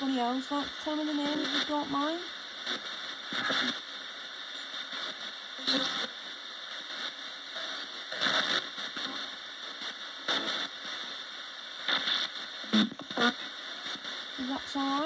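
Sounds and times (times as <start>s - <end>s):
radio static hiss: 0.0s - 15.0s
short bursts of broadcast sound: 2.7s - 3.9s, 11.8s - 13.5s.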